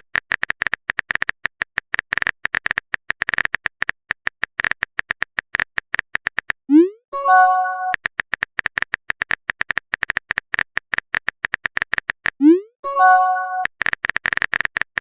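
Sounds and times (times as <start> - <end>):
phone keyboard typing clicks: 0.0 - 6.6, 7.3 - 12.4, 13.1 - 15.0
bright message alert chime: 7.2 - 8.0, 12.8 - 13.6.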